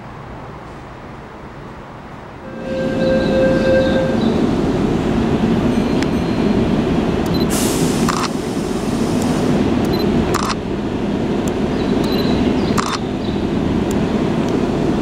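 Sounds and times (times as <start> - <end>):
train whine: 0.7 - 15.0
train braking to a stop: 2.4 - 10.1
air hiss: 7.5 - 9.6.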